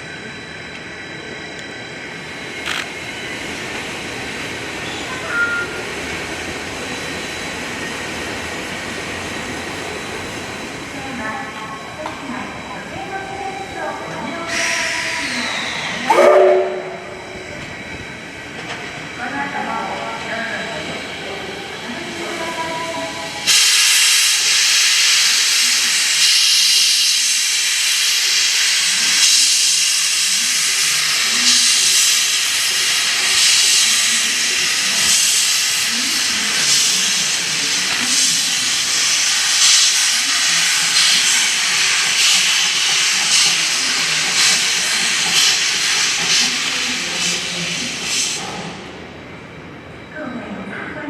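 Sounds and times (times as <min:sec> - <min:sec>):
steam locomotive blowing off steam: 0:14.4 - 0:17.7, 0:19.9 - 0:49.0.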